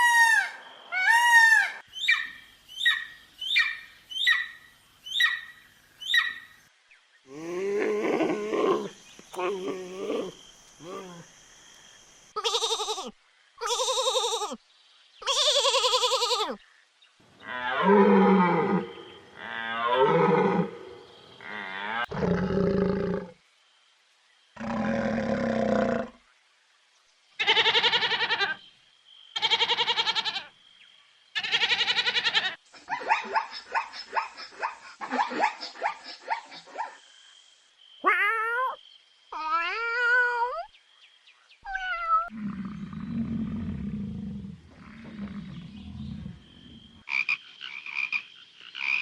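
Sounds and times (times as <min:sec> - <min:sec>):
animal calls: 0:31.4 - 0:37.0.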